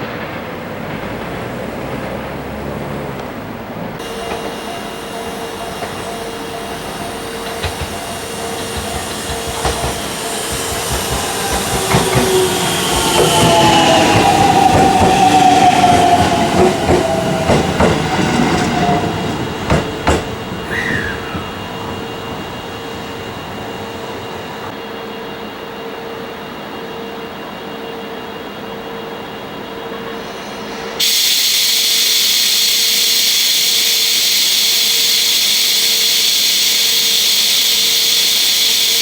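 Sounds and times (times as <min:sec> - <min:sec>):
freight train rumbling past: 0:00.0 - 0:39.0
wheels clicking over rail joints: 0:03.9 - 0:12.4
squealing tones sliding down: 0:04.0 - 0:18.9.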